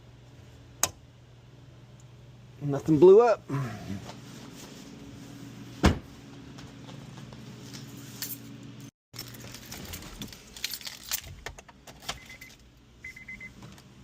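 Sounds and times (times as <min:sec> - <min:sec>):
steady low hum: 0:00.0 - 0:08.9
car keys jangling: 0:09.2 - 0:12.6
dashboard warning chime beeps: 0:12.2 - 0:13.6.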